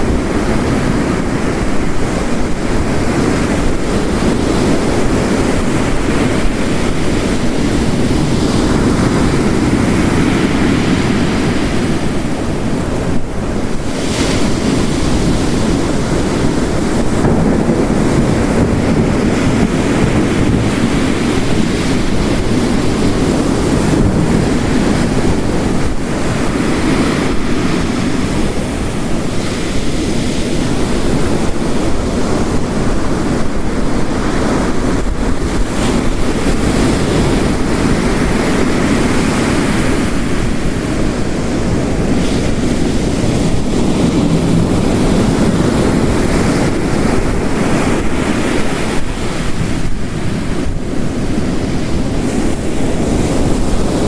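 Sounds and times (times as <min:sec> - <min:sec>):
heavy rain: 0:00.0 - 0:54.0
ocean waves crashing on rocks: 0:00.0 - 0:54.0.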